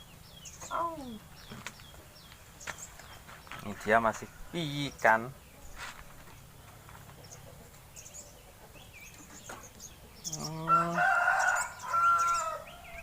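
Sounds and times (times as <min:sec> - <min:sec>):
rooster crowing: 0:10.4 - 0:13.0.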